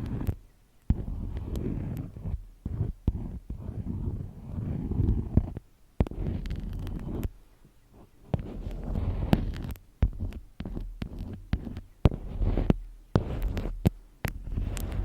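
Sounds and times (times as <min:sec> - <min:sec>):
low rubbing or scratching: 0:00.0 - 0:07.4, 0:08.0 - 0:15.0
sharp taps and clicks: 0:08.3 - 0:15.0.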